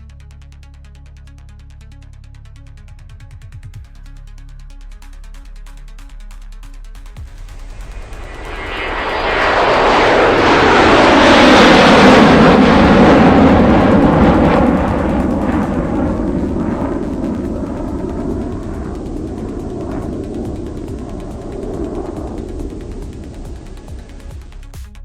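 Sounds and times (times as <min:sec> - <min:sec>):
jet fighter roaring past: 0:07.4 - 0:24.4.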